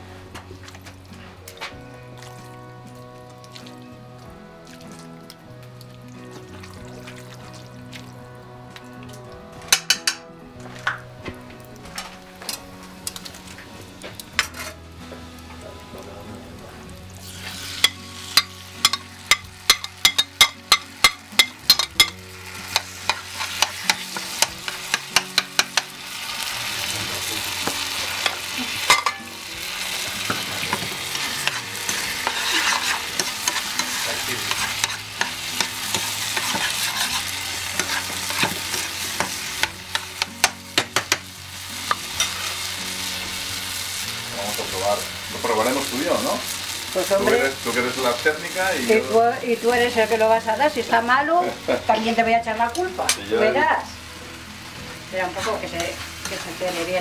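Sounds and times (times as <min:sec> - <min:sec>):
food sizzling in a pan: 0:00.0 - 0:57.0
utensil scraping a pan: 0:14.4 - 0:14.8, 0:17.2 - 0:25.9, 0:30.0 - 0:40.6.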